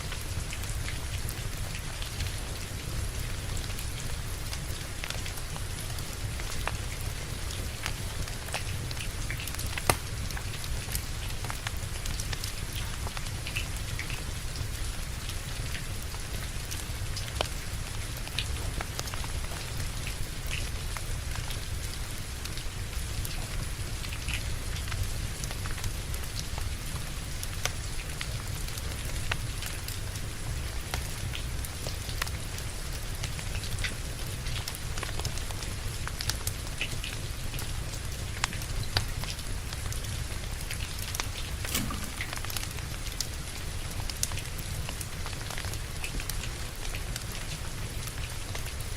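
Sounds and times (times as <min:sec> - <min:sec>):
steady rain: 0:00.0 - 0:48.9
wood fire crackling and popping: 0:04.5 - 0:14.7, 0:38.3 - 0:48.9.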